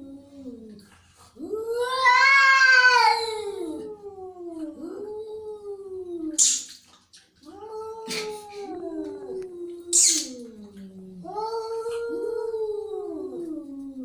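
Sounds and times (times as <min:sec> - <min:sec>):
angry cats yowling: 0:01.5 - 0:05.6.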